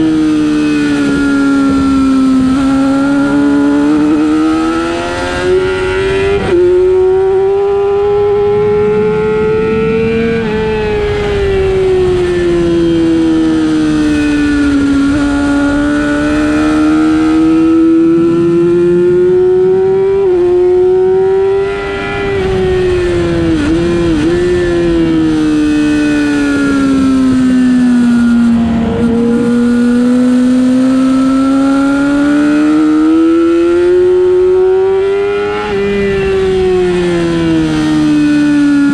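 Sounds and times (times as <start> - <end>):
racing motorcycle engine revving: 0.0 - 38.9.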